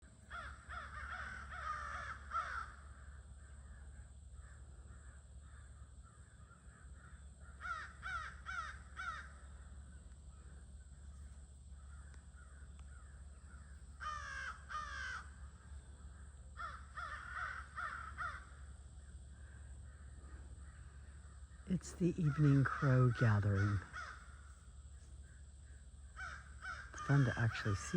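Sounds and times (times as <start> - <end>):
crows cawing: 0.2 - 27.9
distant crows cawing: 0.2 - 27.9.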